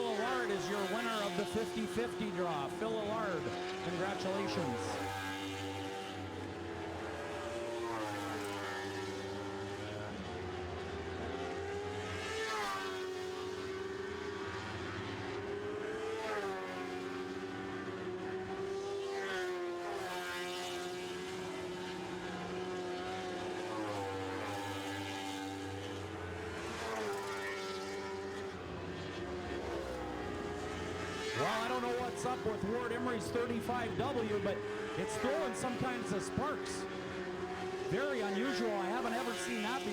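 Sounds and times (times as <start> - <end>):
racing car engines revving: 0.0 - 39.9.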